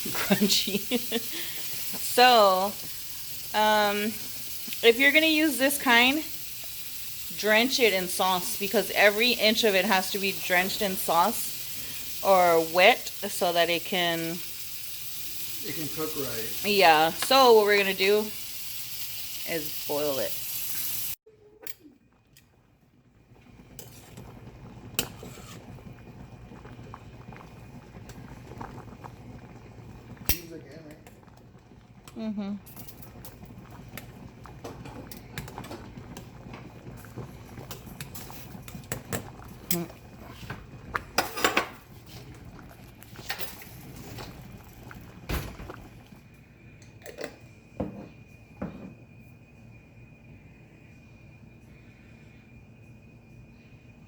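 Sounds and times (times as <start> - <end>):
water boiling in pot: 0.0 - 54.0
utensils and dishes clinking: 41.2 - 41.8.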